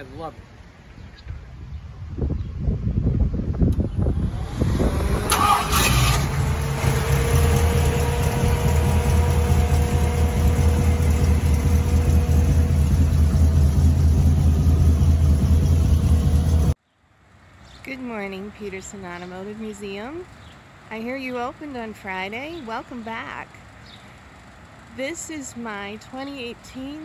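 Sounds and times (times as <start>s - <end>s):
car engine idling and revving: 3.6s - 16.8s, 20.3s - 27.0s.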